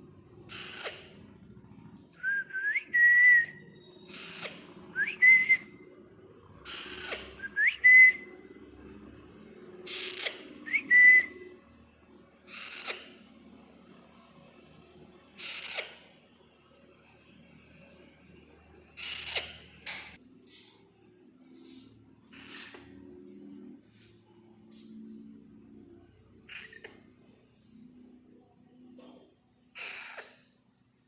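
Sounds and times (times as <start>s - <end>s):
parakeet rasping and whistling: 0.5s - 1.2s, 2.2s - 5.8s, 6.7s - 8.3s, 9.9s - 11.5s, 12.5s - 13.2s, 15.4s - 16.1s, 19.0s - 19.7s, 22.3s - 22.9s, 26.5s - 27.0s, 29.8s - 30.4s.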